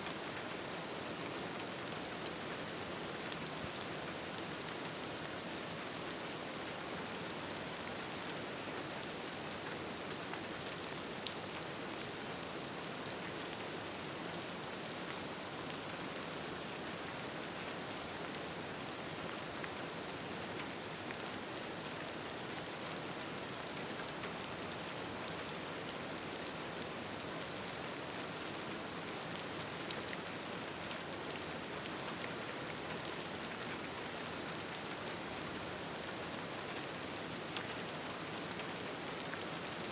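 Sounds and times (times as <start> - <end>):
faint ticks of raindrops: 0.0 - 39.9.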